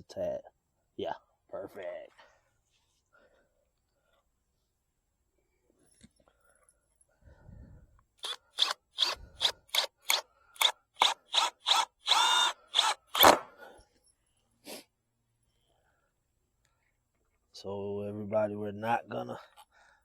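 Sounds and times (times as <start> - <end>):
power drill driving screw into wood: 8.2 - 13.6.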